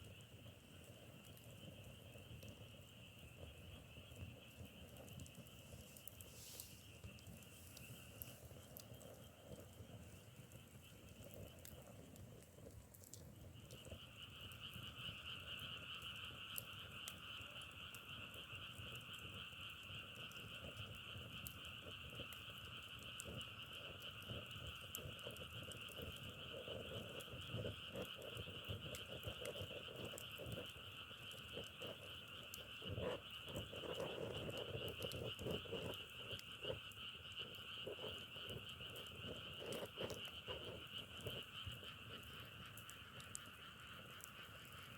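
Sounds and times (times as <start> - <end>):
chorus of frogs trilling: 0.1 - 44.9
nearer low frog croaks: 23.4 - 44.9.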